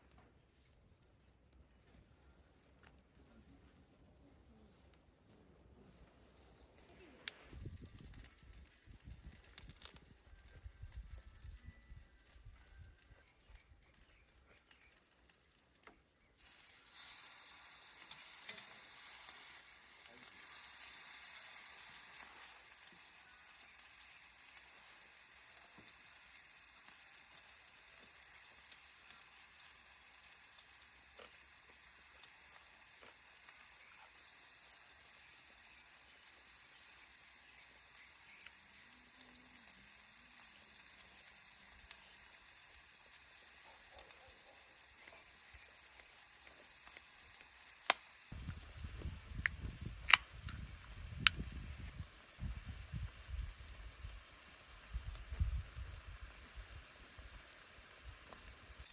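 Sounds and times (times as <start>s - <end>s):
meat sizzling on grill: 7.2s - 58.9s.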